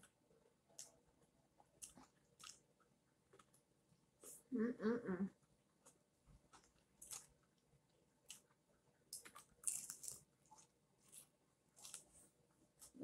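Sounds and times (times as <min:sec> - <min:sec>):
crunchy chewing of fried chicken: 0:00.7 - 0:02.7, 0:05.8 - 0:13.0.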